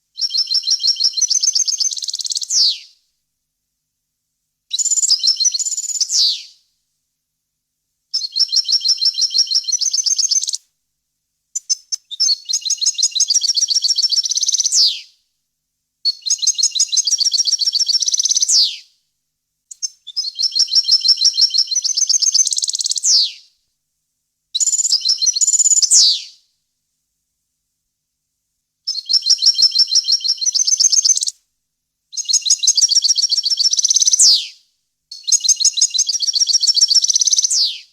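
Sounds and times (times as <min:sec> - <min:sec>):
bird twittering song: 0:11.6 - 0:15.0, 0:16.2 - 0:18.7, 0:19.7 - 0:23.3, 0:32.2 - 0:34.5.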